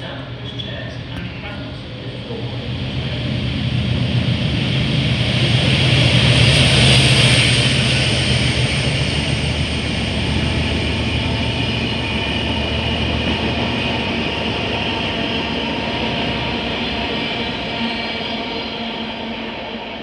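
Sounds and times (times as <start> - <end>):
train running: 0.0 - 20.0.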